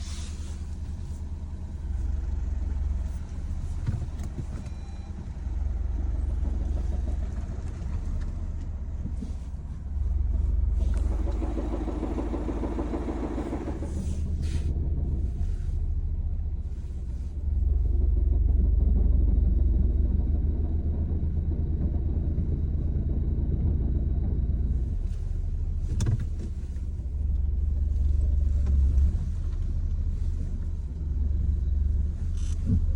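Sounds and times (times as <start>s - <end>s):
diesel engine with slipping clutch: 0.0s - 32.9s.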